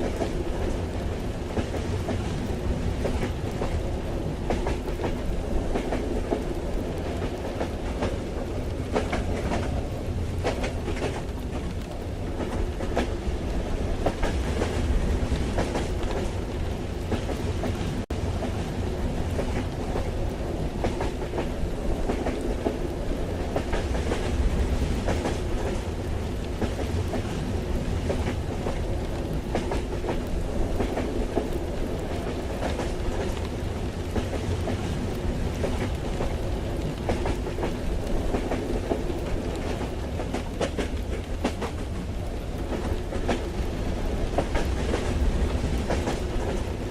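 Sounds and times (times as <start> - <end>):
rain pattering: 0.0 - 46.9
train rumbling: 0.0 - 46.9.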